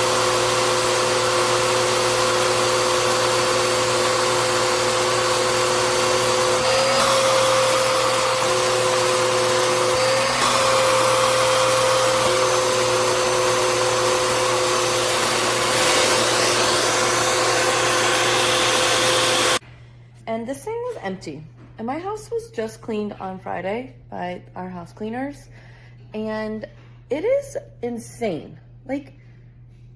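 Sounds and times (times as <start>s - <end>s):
vacuum cleaner running: 0.0s - 19.6s.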